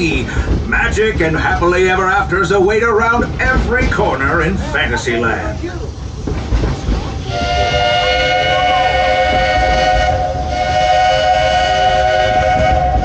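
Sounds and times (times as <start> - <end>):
train rumbling: 0.0 - 13.0
steam locomotive whistle: 7.2 - 13.0.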